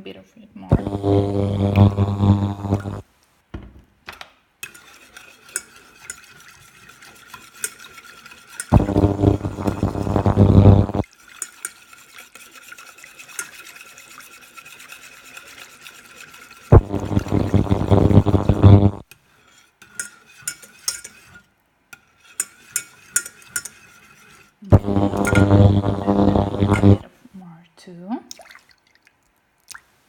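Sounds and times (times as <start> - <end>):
whisk clicking against pan: 4.6 - 8.7, 11.2 - 16.7
whisk stirring sauce in saucepan: 4.6 - 8.8, 11.0 - 16.7, 19.1 - 24.6.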